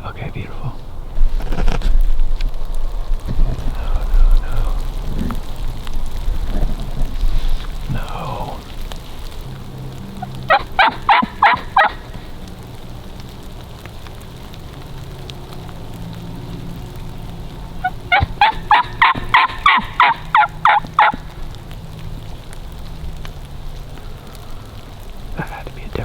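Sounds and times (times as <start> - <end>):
turkey yelps: 10.2 - 12.4, 17.8 - 21.6.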